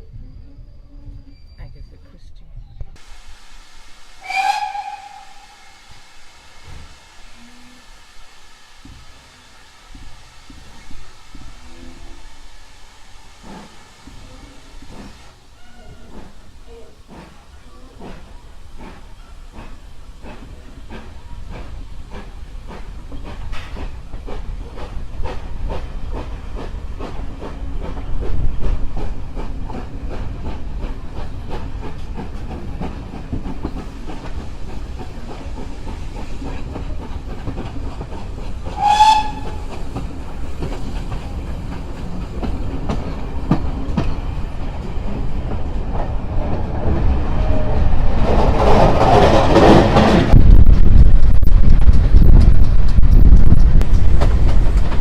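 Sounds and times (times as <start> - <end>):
steam train whistle: 3.4 - 14.7, 38.6 - 40.0
train wheels clacking on rails: 4.2 - 55.0.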